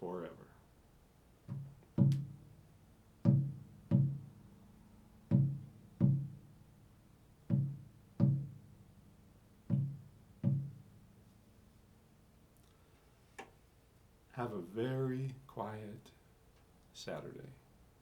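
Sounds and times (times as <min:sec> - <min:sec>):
low plucked notes: 0:01.5 - 0:11.4.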